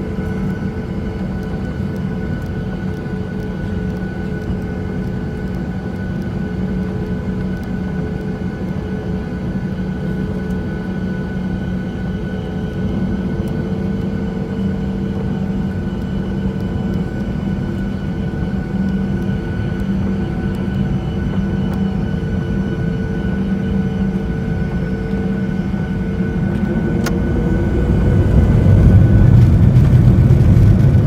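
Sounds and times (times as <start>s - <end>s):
jet airliner engines taking off: 0.0s - 31.0s.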